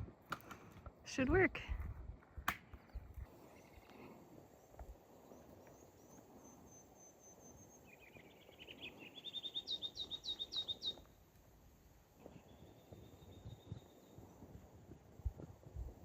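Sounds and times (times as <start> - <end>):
songbird chirping: 2.6 - 11.4, 12.1 - 14.6.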